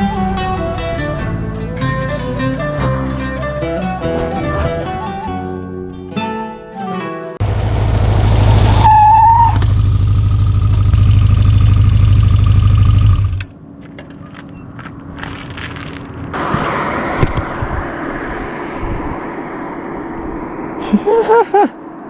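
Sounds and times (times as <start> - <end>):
wind noise: 0.0 - 6.3, 7.4 - 10.2, 13.2 - 22.0
rush of noise: 7.4 - 13.5, 15.9 - 22.0
motorcycle engine at speed: 7.4 - 20.9
camera tumbling on road: 7.7 - 20.7.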